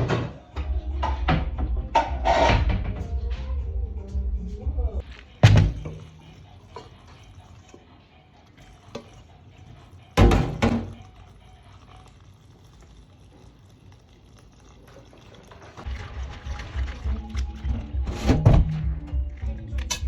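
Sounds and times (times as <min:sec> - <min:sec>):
liquid pouring: 0:05.1 - 0:19.6.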